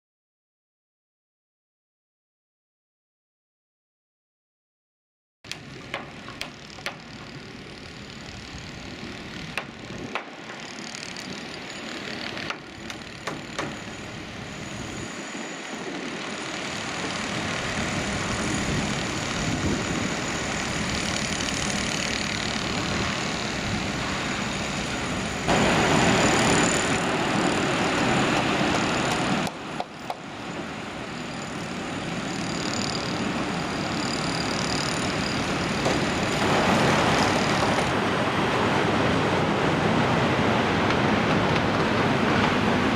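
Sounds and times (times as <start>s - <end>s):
construction machinery and traffic rumble: 5.5s - 42.9s
sharp knocks: 12.5s - 13.8s.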